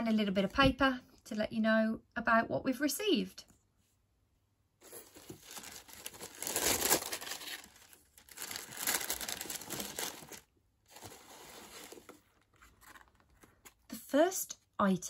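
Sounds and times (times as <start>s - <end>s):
packaging crinkling and rustling: 4.8s - 13.9s.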